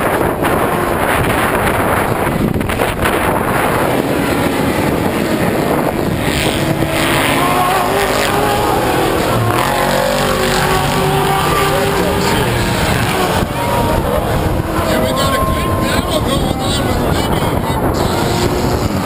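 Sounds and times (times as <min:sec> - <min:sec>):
race truck engines revving: 0:00.0 - 0:19.0.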